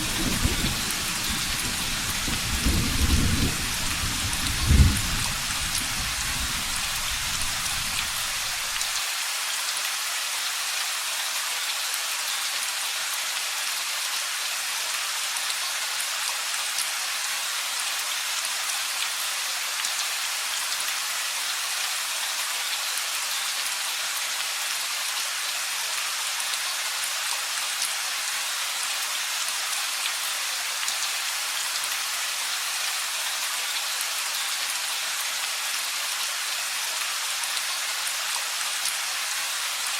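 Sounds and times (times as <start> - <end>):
low thunder rumble: 0.0 - 7.8
steady rain: 0.0 - 39.9.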